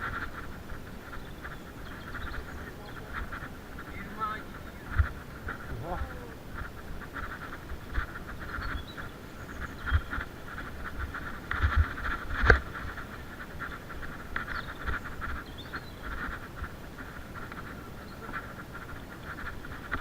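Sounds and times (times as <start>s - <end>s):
low thumps from bumps: 0.0s - 8.9s
mountain bike rattling and clicking: 0.0s - 20.0s.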